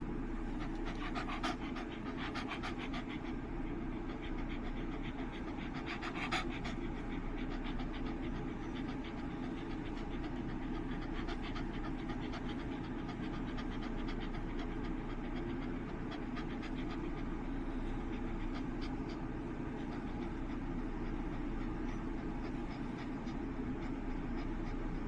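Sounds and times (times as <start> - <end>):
dog panting: 0.0 - 25.0
steady low hum: 0.0 - 25.0.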